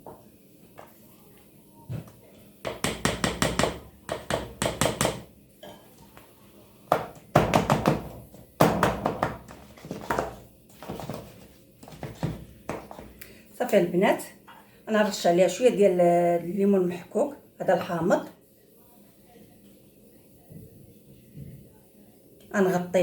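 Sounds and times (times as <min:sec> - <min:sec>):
utensil tapping and scraping dish: 0:08.9 - 0:13.1.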